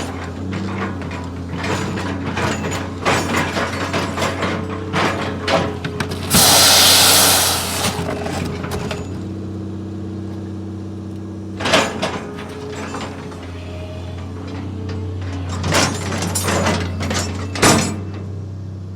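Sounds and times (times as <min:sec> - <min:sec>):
loud burst of hissing: 0:06.1 - 0:08.3
sharp metallic clank: 0:06.1 - 0:08.4
machine engine running: 0:06.1 - 0:08.5.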